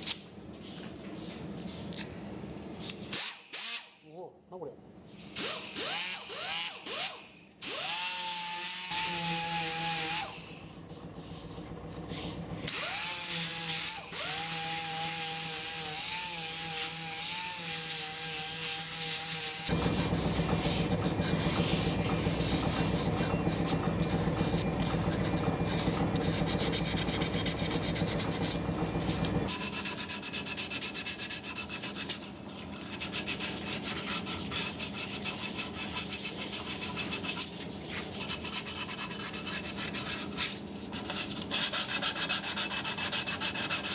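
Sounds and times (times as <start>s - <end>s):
handheld drill whirring: 3.1s - 4.0s, 5.4s - 10.6s, 12.7s - 17.7s
sandpaper rubbing on wood: 13.7s - 43.9s.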